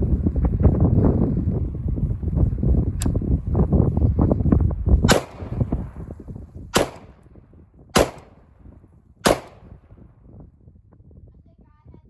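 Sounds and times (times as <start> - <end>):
wind buffeting microphone: 0.0 - 12.0
gunshots with echo: 5.1 - 5.9, 6.7 - 7.2, 8.0 - 8.5, 9.2 - 10.0.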